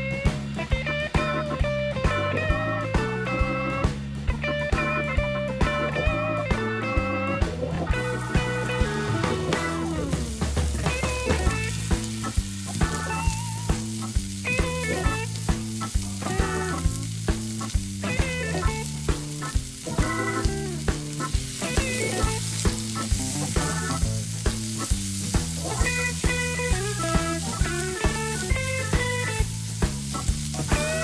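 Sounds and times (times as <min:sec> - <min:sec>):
background music with beat: 0:00.0 - 0:31.0
garlic and shrimp sizzling in pan: 0:07.4 - 0:31.0.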